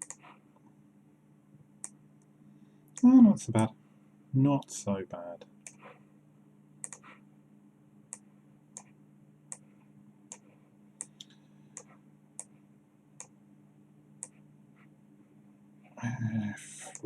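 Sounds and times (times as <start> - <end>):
computer mouse clicks: 0.0 - 0.3, 1.8 - 2.0, 5.6 - 5.8, 6.8 - 7.2, 8.1 - 9.7, 10.3 - 12.6, 13.2 - 13.4
low steady hum: 0.0 - 17.0.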